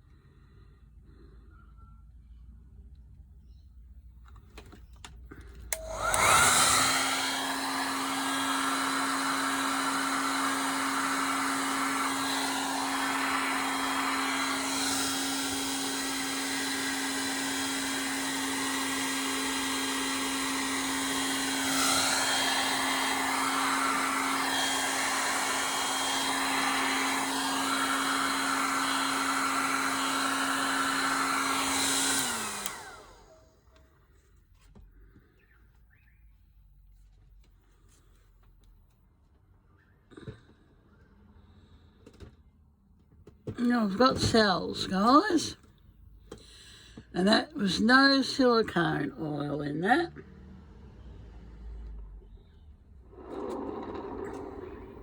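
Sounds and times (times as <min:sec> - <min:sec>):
hair dryer blowing: 0:05.6 - 0:33.8, 0:43.4 - 0:45.6, 0:46.3 - 0:52.1, 0:53.0 - 0:55.0.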